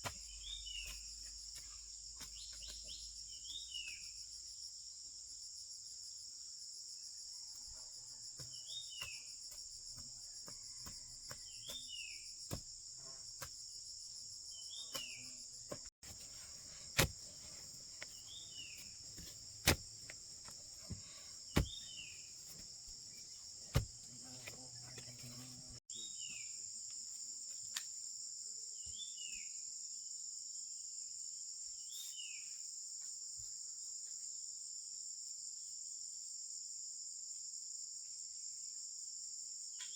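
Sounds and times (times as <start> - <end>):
insects chirring: 0.0 - 30.5.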